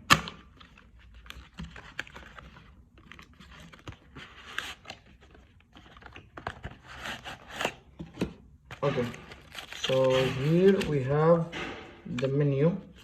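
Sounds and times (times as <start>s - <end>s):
packaging rustling: 0.4s - 7.9s, 8.6s - 11.4s.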